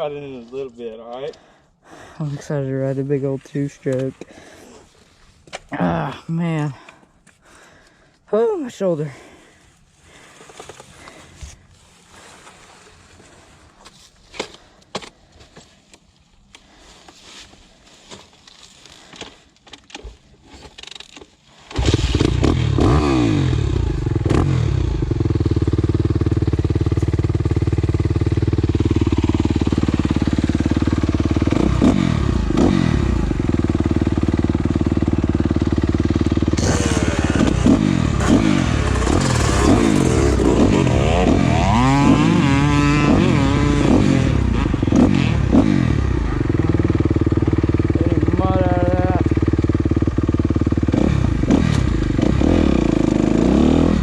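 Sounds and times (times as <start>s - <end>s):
dirt bike engine revving: 21.7s - 54.0s.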